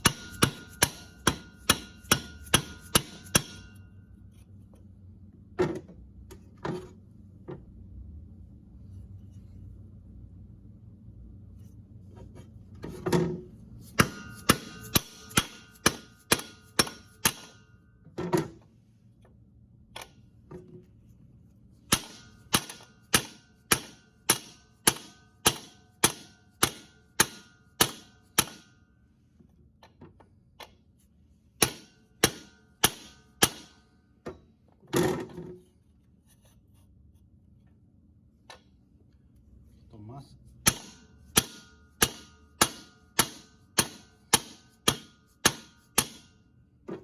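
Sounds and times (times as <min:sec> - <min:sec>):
hammer strikes on metal: 0:00.0 - 0:03.9, 0:13.9 - 0:17.8, 0:21.9 - 0:28.8, 0:31.6 - 0:33.9, 0:40.6 - 0:46.5.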